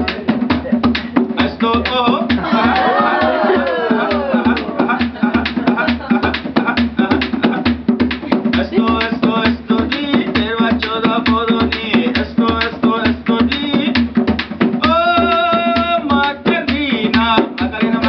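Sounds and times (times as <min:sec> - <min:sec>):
hand drum beat: 0:00.0 - 0:18.0.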